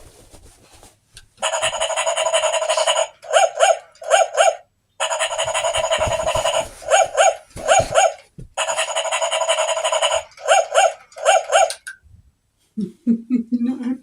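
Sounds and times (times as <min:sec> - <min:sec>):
squeaky dog toy squeaking: 0:01.4 - 0:11.8.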